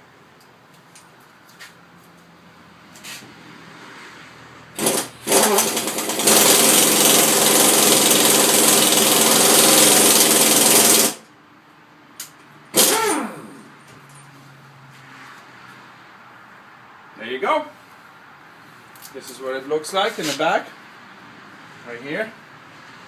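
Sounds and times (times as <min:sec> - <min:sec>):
impact wrench hammering: 0:04.8 - 0:11.2, 0:12.7 - 0:13.6.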